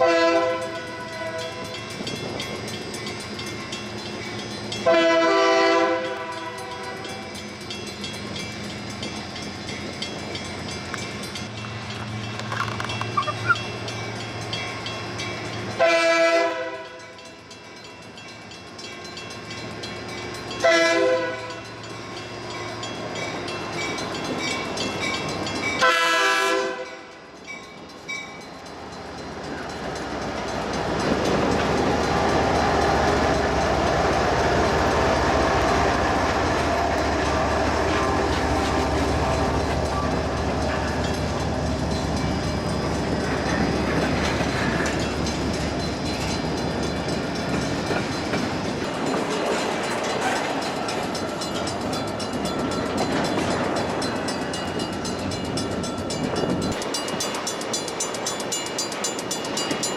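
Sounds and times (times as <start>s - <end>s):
train horn: 0.0s - 1.8s, 4.8s - 7.2s, 15.8s - 17.2s, 20.6s - 21.7s, 25.8s - 27.2s
train wheels rushing on rail: 0.0s - 59.9s.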